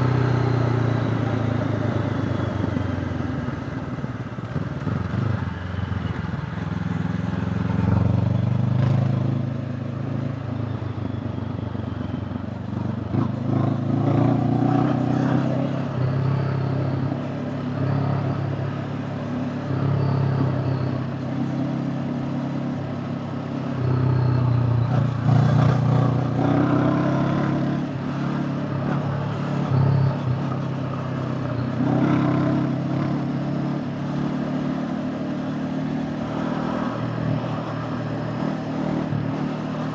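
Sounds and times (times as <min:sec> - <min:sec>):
motorcycle engine revving: 0:23.0 - 0:39.9.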